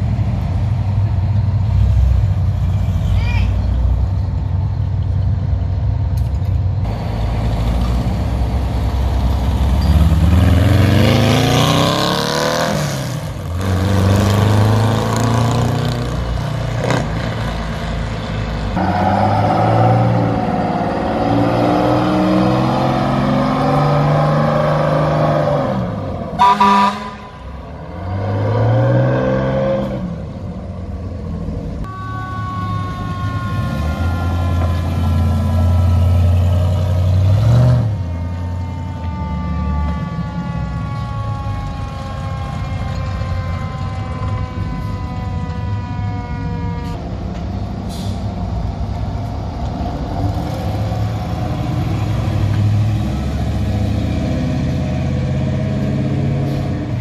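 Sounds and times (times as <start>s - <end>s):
vehicle horn blast: 26.4s - 27.5s, 31.9s - 35.2s.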